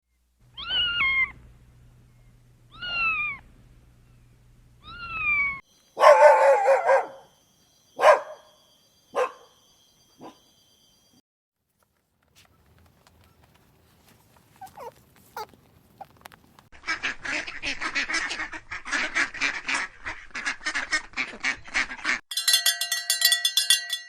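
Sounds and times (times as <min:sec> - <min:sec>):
cat meowing: 0:00.5 - 0:01.4, 0:02.7 - 0:03.4, 0:04.8 - 0:05.6
dog barking: 0:06.0 - 0:07.3, 0:08.0 - 0:09.6, 0:10.2 - 0:10.4, 0:14.6 - 0:15.5.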